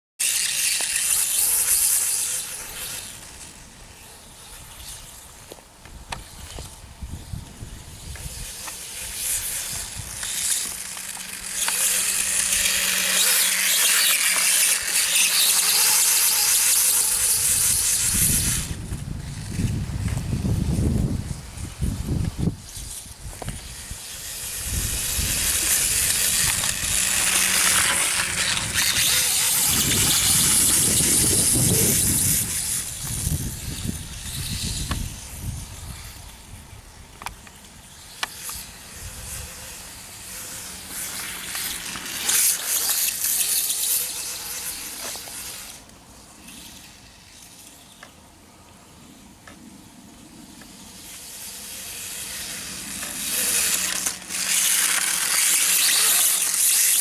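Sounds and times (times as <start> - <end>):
electric toy dirt bike running: 0.2 - 48.2, 49.1 - 57.0
tyres hissing on gravel: 8.2 - 18.8, 22.7 - 33.2, 50.9 - 57.0.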